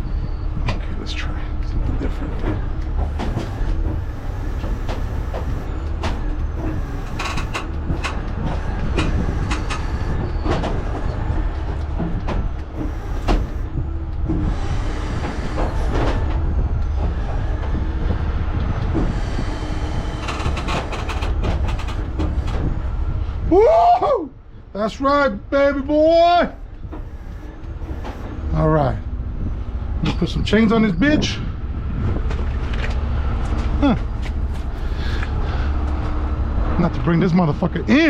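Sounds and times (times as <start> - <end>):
tow truck engine running: 0.0 - 23.5, 24.4 - 38.0
metallic clanks and knocks: 20.2 - 22.8.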